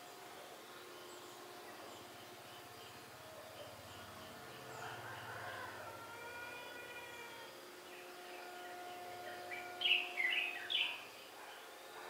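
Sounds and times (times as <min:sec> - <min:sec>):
faint siren-like hum: 0:01.0 - 0:12.0
bird chirping: 0:07.1 - 0:11.7.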